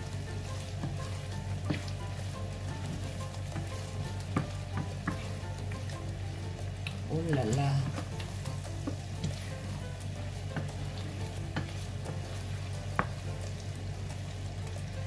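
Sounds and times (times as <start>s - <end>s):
chicken wings sizzling in a pan: 0.0s - 15.0s
wooden spatula stirring: 0.0s - 15.0s
spatula knocking on pan: 0.6s - 6.2s, 7.2s - 13.4s.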